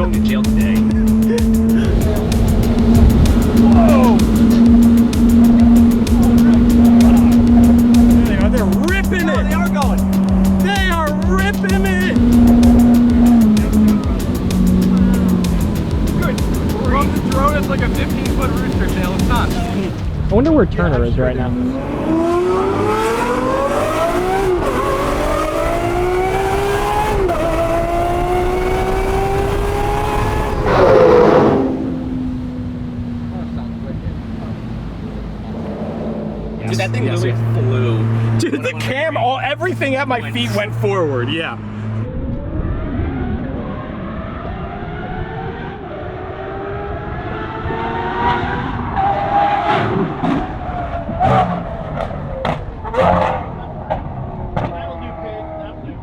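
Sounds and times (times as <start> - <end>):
outboard boat engines running: 0.0 - 21.5
car engine accelerating hard: 0.0 - 56.0.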